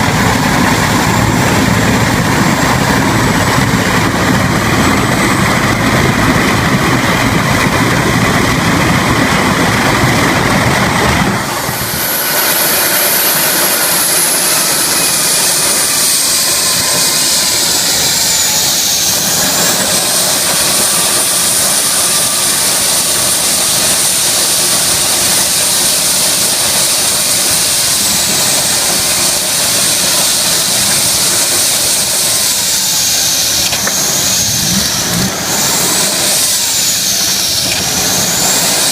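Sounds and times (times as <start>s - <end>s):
high turbine whine and hiss: 0.0s - 38.9s
jet engine roar: 0.0s - 38.9s.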